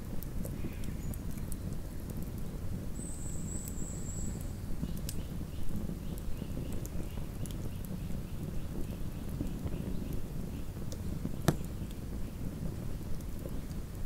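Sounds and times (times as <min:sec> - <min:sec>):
burning wood crackling: 0:00.0 - 0:14.0
campfire flames rumbling: 0:00.0 - 0:14.0
thin high whistle: 0:03.0 - 0:04.4.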